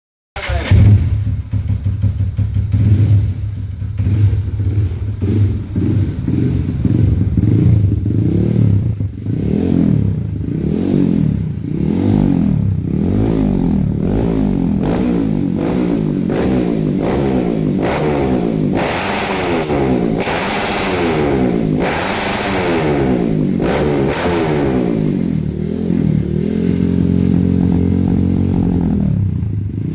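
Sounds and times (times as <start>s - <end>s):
motorcycle engine revving: 0.4s - 29.9s.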